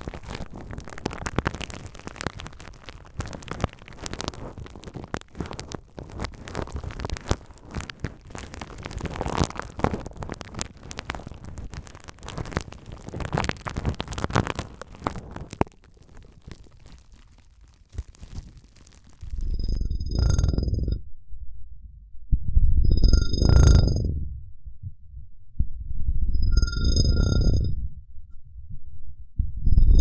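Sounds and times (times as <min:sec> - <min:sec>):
bubble wrap crackling: 0:00.0 - 0:19.8.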